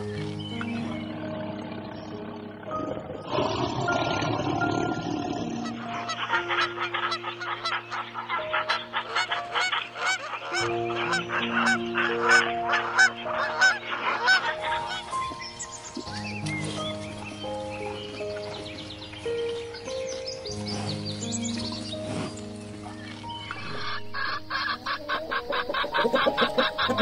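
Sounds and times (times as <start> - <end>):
background music with chords: 0.0 - 27.0
swans honking: 5.5 - 16.0, 20.6 - 27.0.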